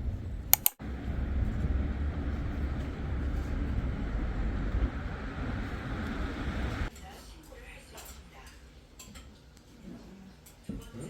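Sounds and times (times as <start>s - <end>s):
vehicle running rumble: 0.0s - 6.9s.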